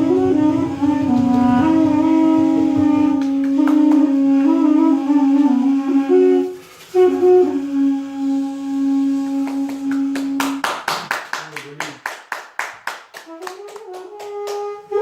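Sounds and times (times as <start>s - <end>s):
double-reed woodwind drone: 0.0s - 10.6s, 13.3s - 15.0s
double-reed woodwind melody: 0.0s - 10.6s, 13.2s - 15.0s
applause: 3.2s - 4.1s, 9.4s - 14.8s.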